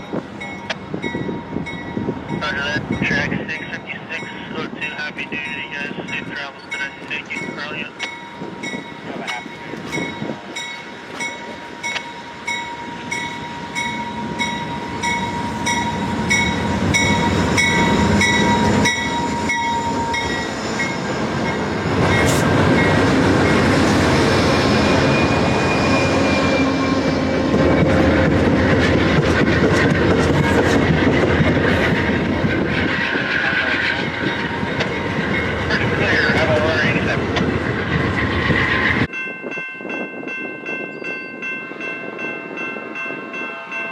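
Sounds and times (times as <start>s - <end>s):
train wheels clattering on rails: 6.6s - 39.1s.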